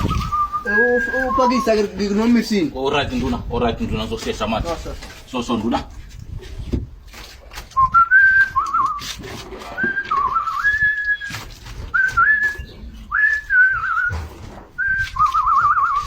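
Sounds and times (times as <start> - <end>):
person whistling a tune: 0.0 - 1.8, 7.8 - 9.1, 9.8 - 14.2, 14.8 - 16.0.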